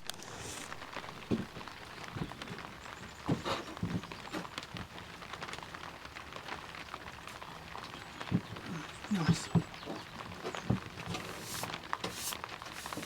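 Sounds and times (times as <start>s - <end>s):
objects knocking and clattering: 0.0s - 5.1s, 7.8s - 13.0s
rain hiss: 0.0s - 13.0s.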